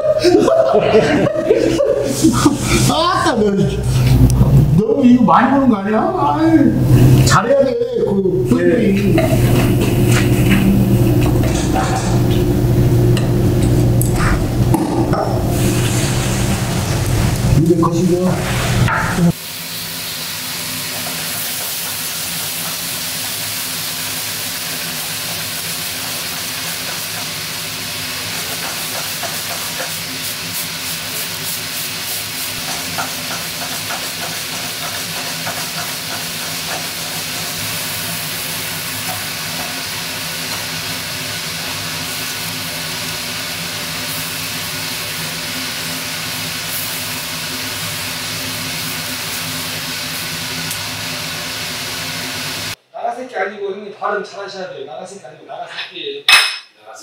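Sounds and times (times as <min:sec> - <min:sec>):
steady low hum: 0:00.0 - 0:19.4
food sizzling in a frying pan: 0:09.1 - 0:13.9, 0:15.4 - 0:17.5, 0:18.4 - 0:52.8.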